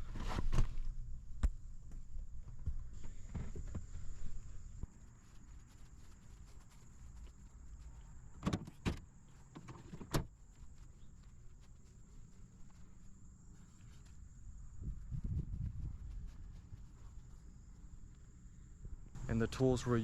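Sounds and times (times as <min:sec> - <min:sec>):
faint low rumble: 0:10.3 - 0:20.0.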